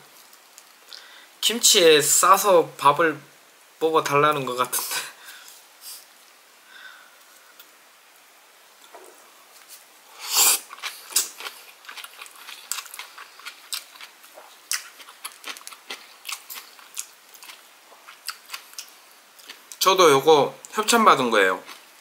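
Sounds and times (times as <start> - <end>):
chewing with wet clicks and smacks: 10.7 - 19.8.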